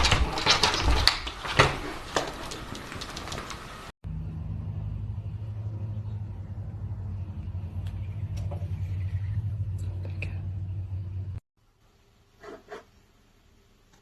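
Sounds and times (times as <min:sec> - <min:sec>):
faint clicks: 0:02.1 - 0:03.8
low rumbling hum: 0:04.0 - 0:11.4.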